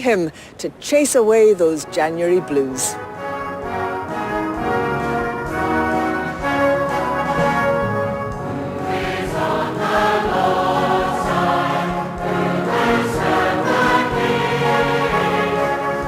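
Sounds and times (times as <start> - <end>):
brass band playing: 1.9 - 16.0
choir and congregation singing hymn: 8.5 - 16.0.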